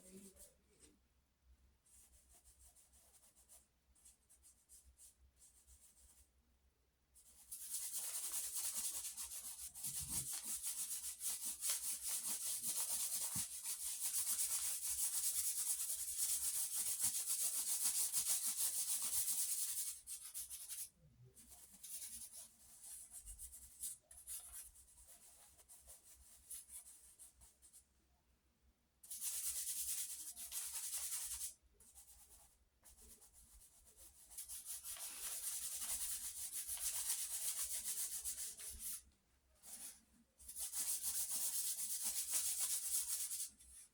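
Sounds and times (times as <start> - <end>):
pencil shading on paper: 7.3 - 27.3.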